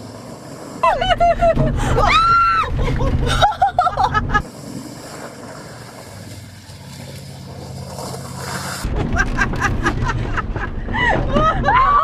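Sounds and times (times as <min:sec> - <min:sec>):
truck engine running: 0:00.0 - 0:11.7.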